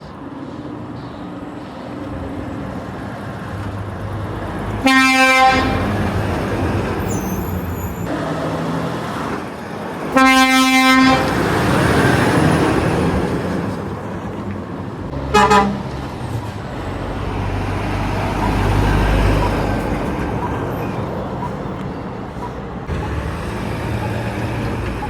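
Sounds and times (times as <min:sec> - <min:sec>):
trucks passing: 0:00.0 - 0:25.0
truck horn blasting: 0:04.8 - 0:06.1, 0:10.1 - 0:11.6, 0:15.3 - 0:15.9.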